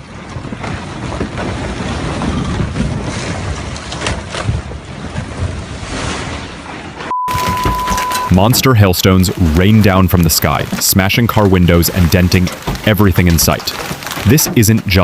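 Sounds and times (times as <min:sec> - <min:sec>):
wind buffeting microphone: 0:00.0 - 0:06.0
rough water and waves: 0:00.0 - 0:15.0.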